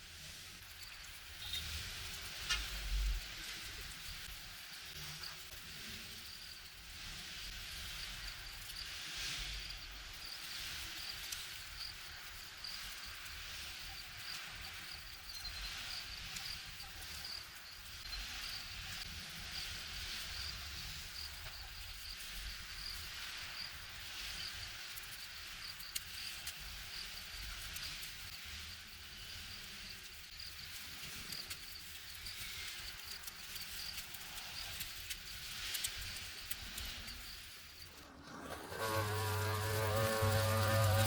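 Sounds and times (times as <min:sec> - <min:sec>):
rough hiss: 0:30.7 - 0:41.0.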